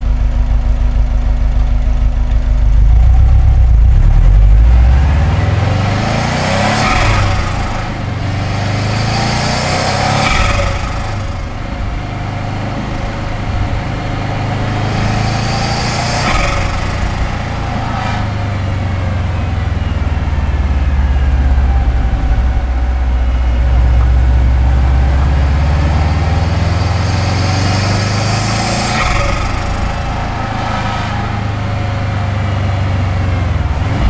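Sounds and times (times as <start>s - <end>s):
turbo fluttering: 0.0s - 8.3s, 14.6s - 19.6s, 21.8s - 32.1s
car engine revving: 0.0s - 34.0s.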